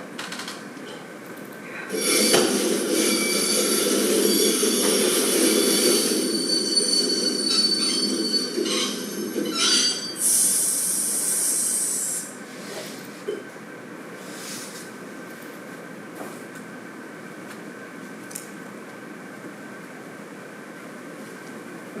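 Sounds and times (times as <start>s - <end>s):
train wheels squealing on rails: 1.9s - 12.4s
loud hiss: 10.2s - 12.4s.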